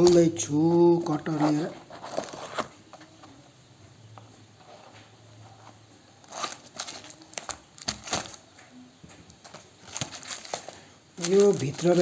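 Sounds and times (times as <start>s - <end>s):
cutter knife scraping packaging: 6.2s - 8.4s.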